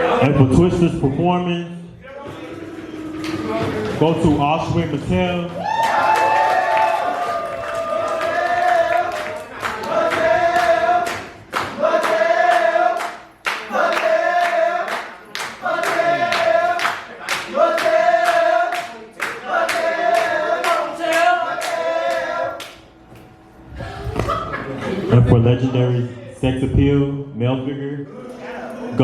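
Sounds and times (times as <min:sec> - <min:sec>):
rhythmic clapping: 0:02.3 - 0:23.3
group of voices chanting: 0:06.8 - 0:22.7.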